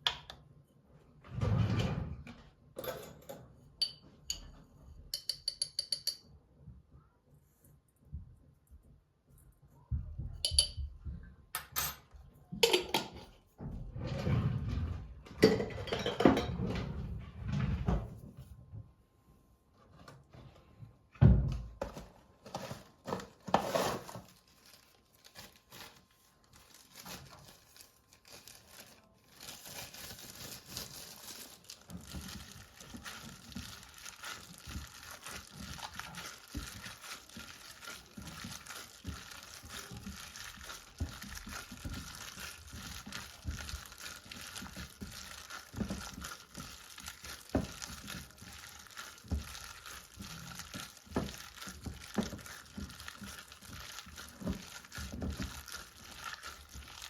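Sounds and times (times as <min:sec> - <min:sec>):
kitchen knocks and clatter: 0:09.9 - 0:18.3.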